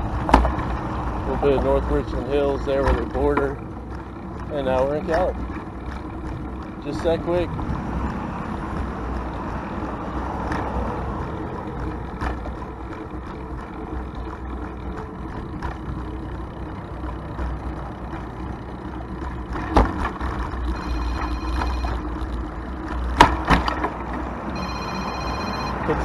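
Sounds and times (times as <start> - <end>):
bicycle road noise: 0.0 - 26.0
road traffic: 0.0 - 26.0
wind rumble: 7.4 - 14.1.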